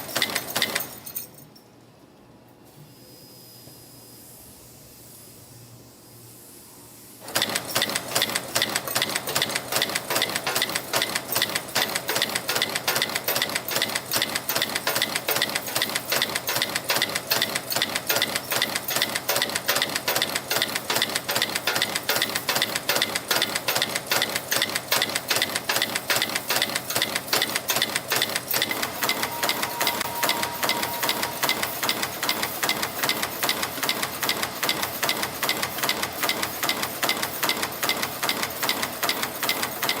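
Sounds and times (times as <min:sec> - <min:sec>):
wire forming machine clattering: 0:07.3 - 0:40.0.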